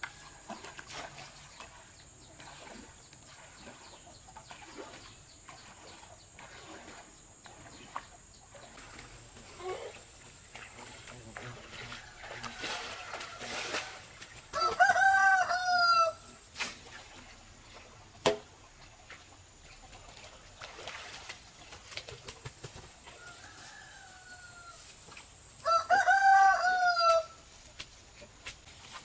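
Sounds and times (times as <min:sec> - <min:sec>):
rooster crowing: 0:11.9 - 0:13.9, 0:14.5 - 0:16.3, 0:23.2 - 0:24.9, 0:25.6 - 0:27.4.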